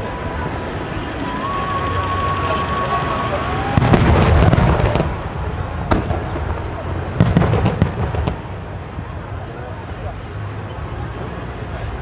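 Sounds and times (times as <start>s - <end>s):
firework crackle: 1.4s - 10.0s.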